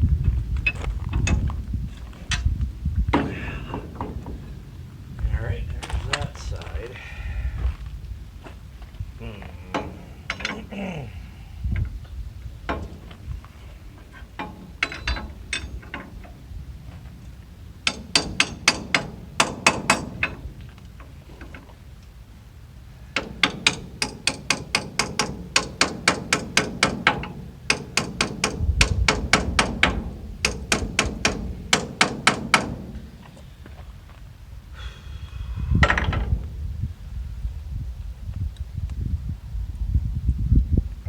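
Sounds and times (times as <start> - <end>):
hammer blows on metal: 3.1 - 4.7.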